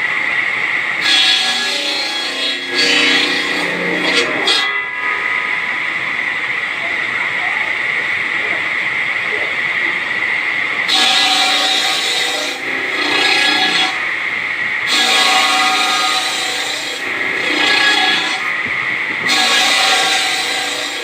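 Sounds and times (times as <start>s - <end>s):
machine whining: 0.0s - 21.0s
rasping ringing cut: 1.0s - 6.1s.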